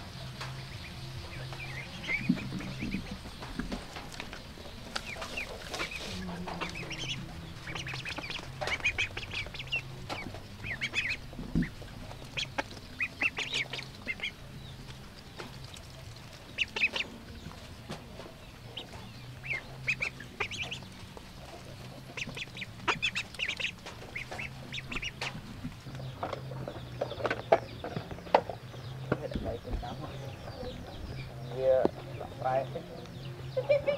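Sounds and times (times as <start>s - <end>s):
ducks calling: 0.0s - 33.9s
steady low hum: 0.0s - 33.9s.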